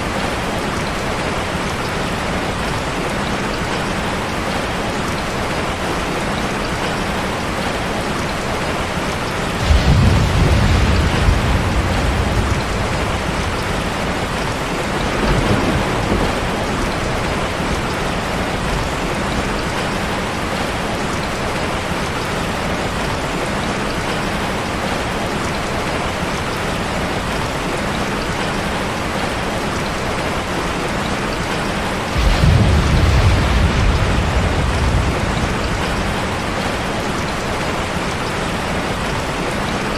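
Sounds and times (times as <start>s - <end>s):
steady rain hiss: 0.0s - 39.9s
thunder rumbling: 9.0s - 21.6s, 32.0s - 39.8s.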